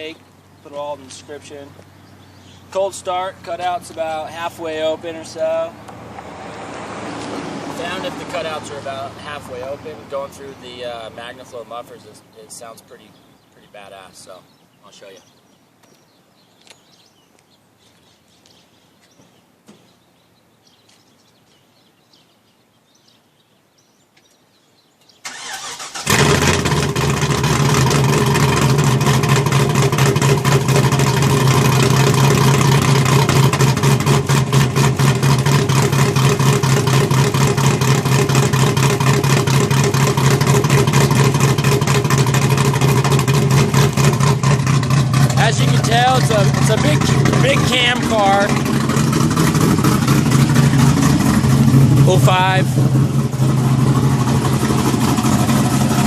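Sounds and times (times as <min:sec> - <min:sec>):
starter motor cranking: 0:25.3 - 0:56.0
loud choppy engine idle: 0:26.0 - 0:56.0.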